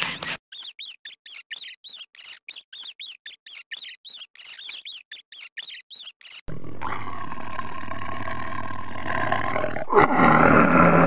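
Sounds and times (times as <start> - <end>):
mouse squeaking: 0.0 - 6.5
big cat growling: 6.5 - 11.0.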